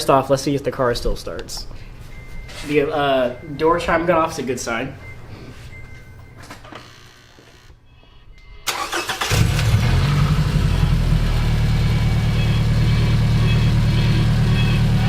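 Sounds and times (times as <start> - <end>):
car engine starting and idling: 8.6 - 15.0.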